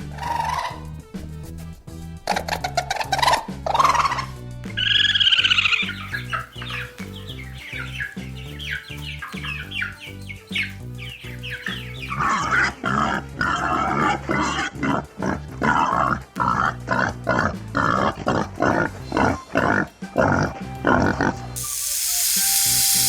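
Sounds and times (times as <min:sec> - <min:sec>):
background music: 0:00.0 - 0:23.0
pig squealing and grunting: 0:12.1 - 0:21.4
high falling chirps: 0:21.6 - 0:23.0.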